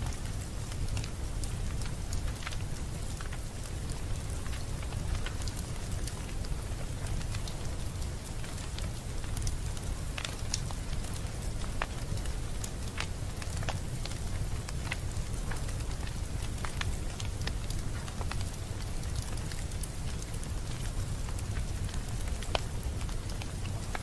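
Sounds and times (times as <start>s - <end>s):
low fire rumble: 0.0s - 24.0s
wood fire crackling: 0.0s - 24.0s.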